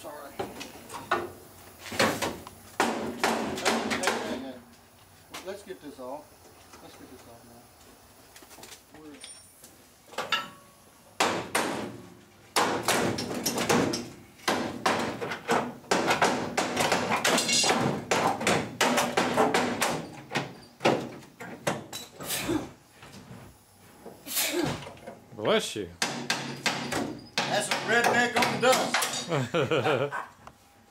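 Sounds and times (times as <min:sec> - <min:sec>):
metal knocks and clanks: 0:02.0 - 0:04.5, 0:10.1 - 0:12.0, 0:12.6 - 0:22.2, 0:26.0 - 0:29.3.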